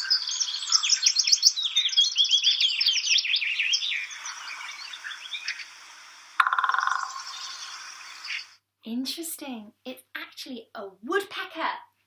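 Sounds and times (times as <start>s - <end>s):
high chirping birdsong: 0.0s - 8.6s.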